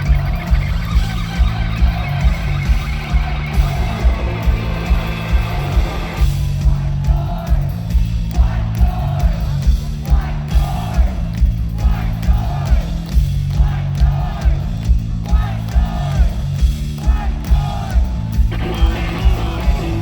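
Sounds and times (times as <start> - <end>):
electric guitar: 0.0 - 6.3
heavy drum beat: 0.0 - 20.0
person singing: 18.5 - 20.0.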